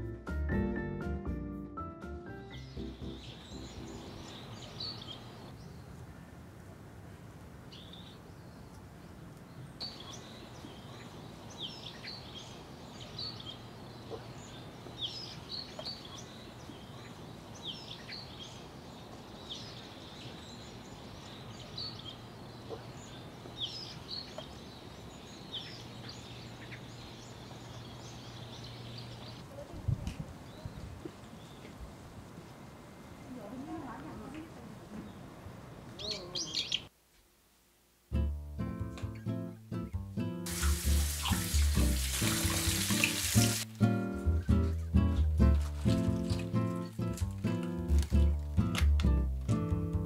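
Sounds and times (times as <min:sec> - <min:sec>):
small birds chirping: 0:02.5 - 0:06.4, 0:07.6 - 0:37.0, 0:40.5 - 0:43.6.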